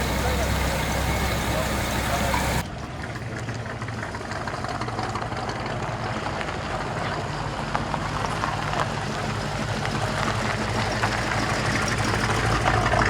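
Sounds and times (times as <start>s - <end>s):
car engine idling: 0.0s - 2.6s.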